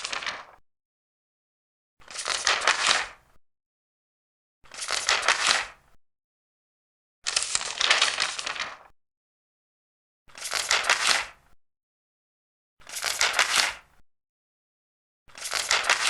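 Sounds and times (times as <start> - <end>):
paper pages being turned: 0.0 - 0.6, 2.0 - 3.2, 4.7 - 5.8, 7.3 - 8.9, 10.3 - 11.4, 12.9 - 13.8, 15.3 - 16.0.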